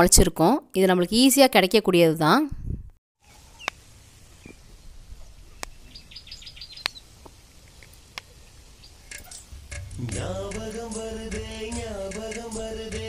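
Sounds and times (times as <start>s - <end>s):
small bird chirping: 3.2s - 3.8s, 4.4s - 7.2s, 8.2s - 9.6s.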